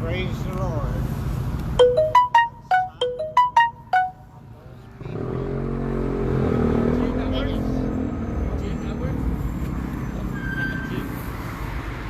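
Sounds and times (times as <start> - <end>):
phone ringtone melody: 1.8 - 4.3.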